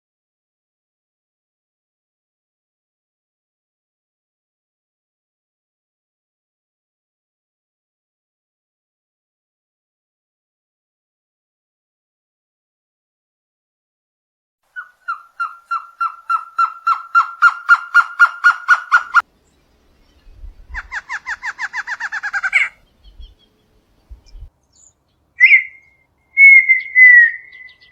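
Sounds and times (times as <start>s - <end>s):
bird whistling repeated notes: 14.8s - 19.2s, 24.8s - 27.9s.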